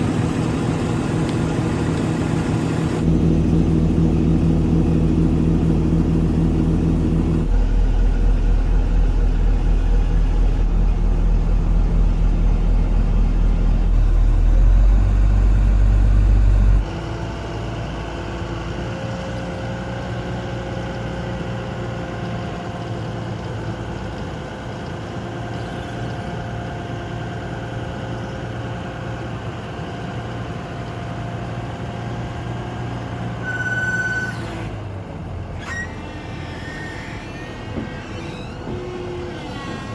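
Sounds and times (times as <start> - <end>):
diesel forklift engine running: 0.0 - 39.9
short high tone: 33.4 - 34.4.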